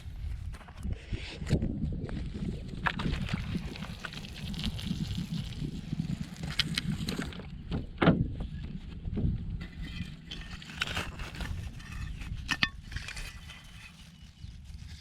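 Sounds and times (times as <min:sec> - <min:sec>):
water sloshing and splashing: 0:02.8 - 0:05.2.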